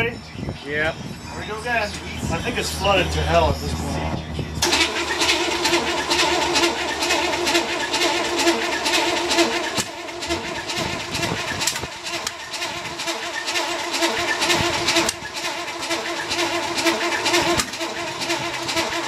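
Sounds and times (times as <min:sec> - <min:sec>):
engine whine: 0:00.0 - 0:19.0
engine running roughly: 0:01.2 - 0:19.0
engine pops: 0:04.6 - 0:19.0.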